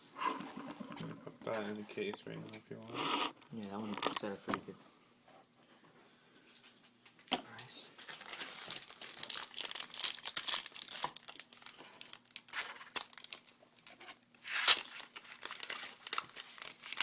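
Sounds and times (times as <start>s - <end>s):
foil wrapper crinkling and tearing: 8.0s - 17.0s.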